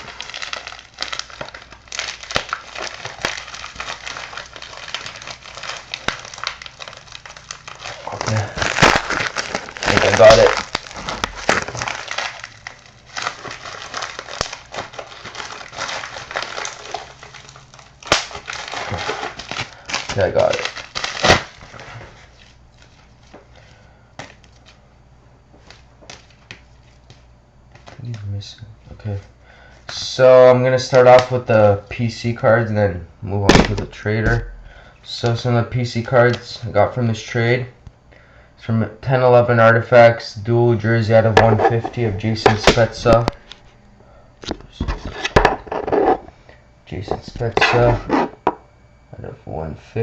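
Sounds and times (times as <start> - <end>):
package being torn open: 0.0 - 22.0
packaging crinkling: 0.0 - 23.4, 41.4 - 43.7, 44.4 - 46.3
low steady hum: 0.0 - 50.0.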